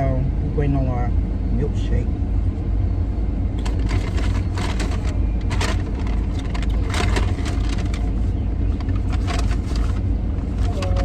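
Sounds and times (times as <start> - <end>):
car engine idling: 0.0 - 11.0
brief rustling: 3.6 - 11.0.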